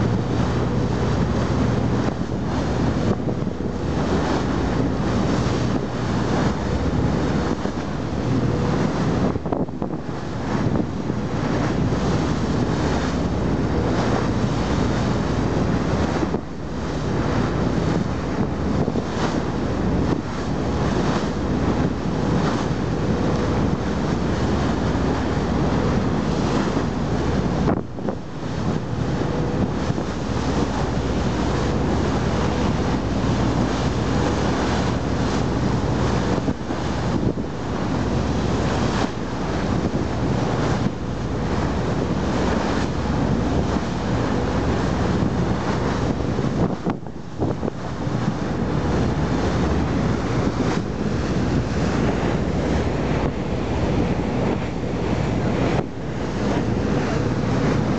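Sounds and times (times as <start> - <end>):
sea surf rushing: 0.0 - 57.9
wind buffeting microphone: 0.0 - 57.9.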